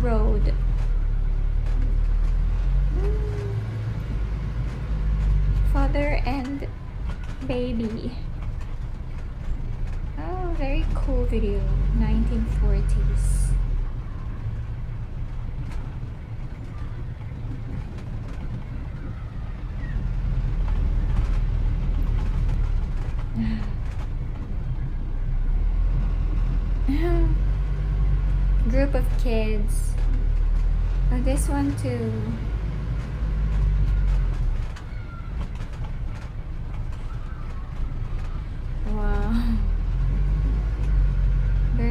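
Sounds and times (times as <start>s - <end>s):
vehicle engine rumble: 0.0s - 41.9s.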